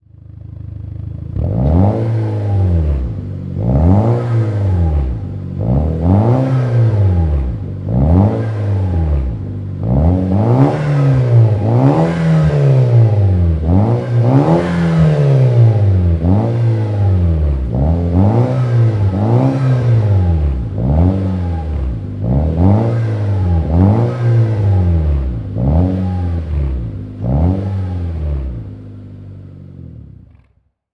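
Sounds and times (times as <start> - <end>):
car engine revving: 1.2 - 30.6.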